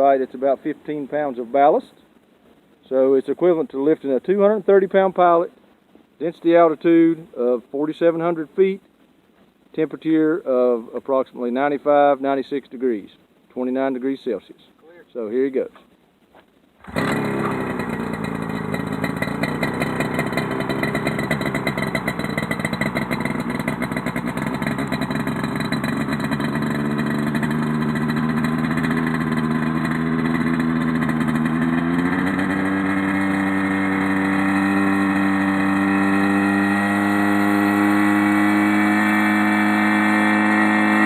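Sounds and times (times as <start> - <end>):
two-stroke engine running: 16.8 - 41.0.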